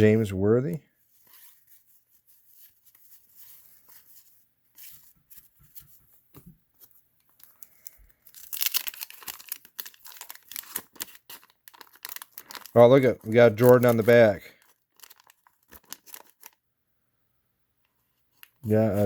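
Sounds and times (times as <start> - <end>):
cards rustling: 0.7 - 16.6, 18.3 - 19.0
wax-paper wrapper tearing and crinkling: 7.3 - 16.6, 18.3 - 19.0.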